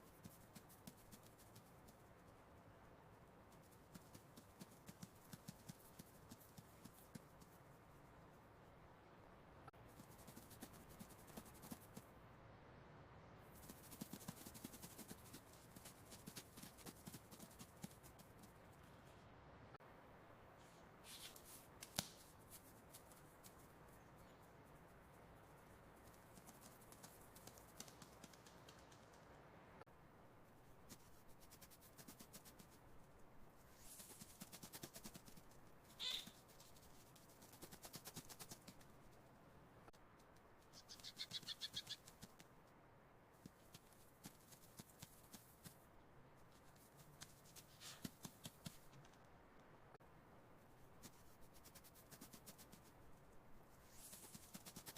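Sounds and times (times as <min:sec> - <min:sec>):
faint rapid clicking: 0:03.4 - 0:07.8, 0:13.6 - 0:19.0, 0:21.8 - 0:29.4, 0:33.9 - 0:42.8
high-pitched animal call: 0:36.0 - 0:36.4
mouse feet scurrying: 0:46.5 - 0:49.3.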